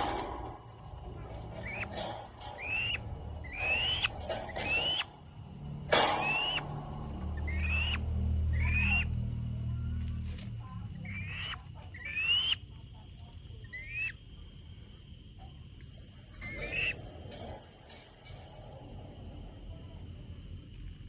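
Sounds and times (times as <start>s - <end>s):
low rumble: 0.0s - 11.4s
falcon calling: 1.4s - 5.2s, 6.0s - 6.7s, 7.3s - 9.1s, 11.0s - 12.6s, 16.4s - 17.0s.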